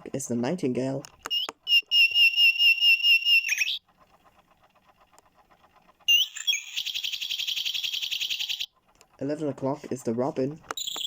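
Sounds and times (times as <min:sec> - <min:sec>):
recorded nightingale song: 0:01.3 - 0:03.8, 0:06.1 - 0:08.7.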